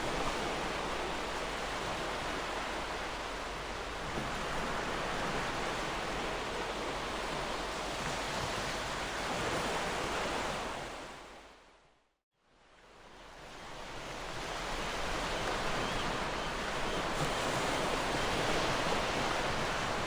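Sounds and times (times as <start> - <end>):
ocean surf washing ashore: 14.1 - 20.0.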